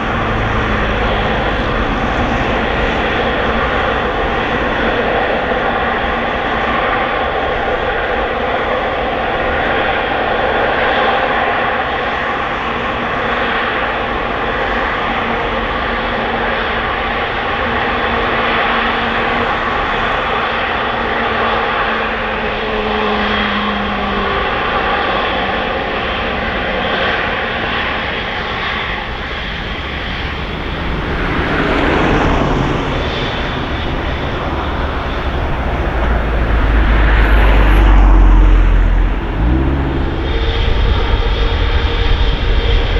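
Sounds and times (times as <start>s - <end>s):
deep rumble: 0.0s - 7.1s, 29.1s - 42.9s
airliner engines roaring: 0.0s - 42.9s.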